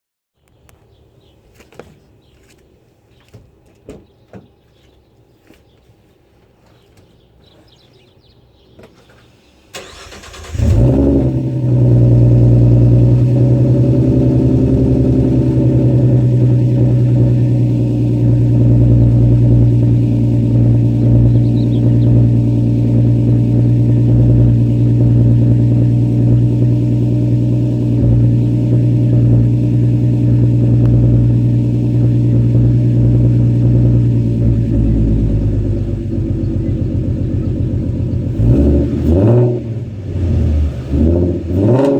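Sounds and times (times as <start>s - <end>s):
car engine starting and idling: 9.0s - 41.9s.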